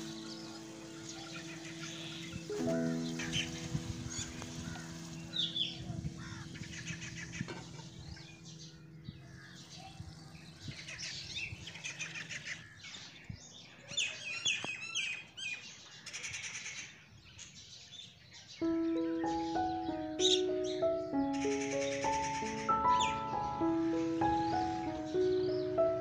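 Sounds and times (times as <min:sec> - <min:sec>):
background music: 0:00.0 - 0:10.6, 0:18.6 - 0:26.0
small birds chirping: 0:00.0 - 0:26.0.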